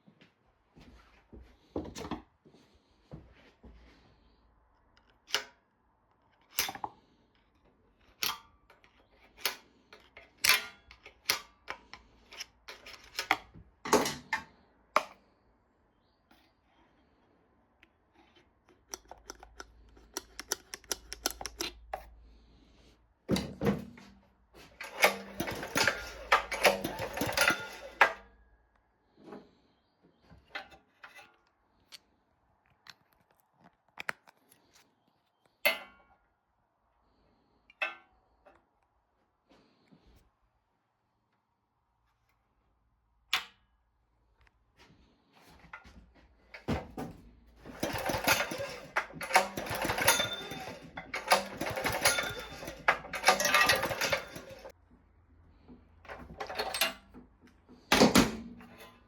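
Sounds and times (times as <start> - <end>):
tools and parts clicking and rattling: 8.0 - 15.2, 18.1 - 22.5, 23.3 - 28.3, 30.4 - 32.1, 45.6 - 54.8, 55.5 - 59.0.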